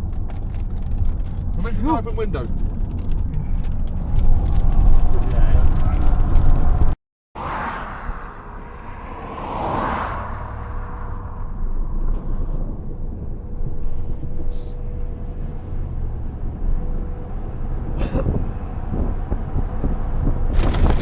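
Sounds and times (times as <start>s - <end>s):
car road noise: 0.0s - 21.0s
wind rushing: 4.0s - 14.4s, 18.4s - 21.0s.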